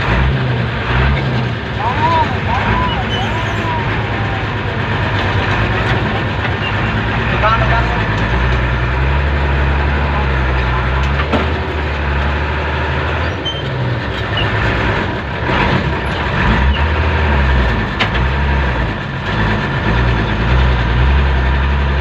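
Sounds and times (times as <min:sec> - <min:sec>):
road and traffic noise: 0:00.0 - 0:22.0
vehicle engine humming: 0:00.0 - 0:22.0.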